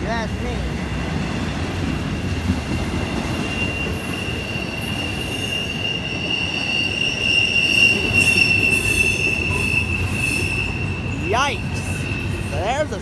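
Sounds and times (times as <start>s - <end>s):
freight train wheels rumbling: 0.0s - 13.0s
high-pitched wheel squeal: 3.3s - 13.0s.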